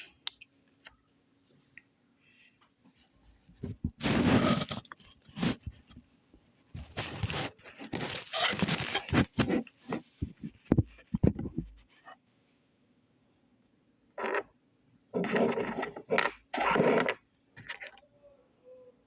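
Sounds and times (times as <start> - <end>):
slime squishing and crackling: 7.0 - 9.6.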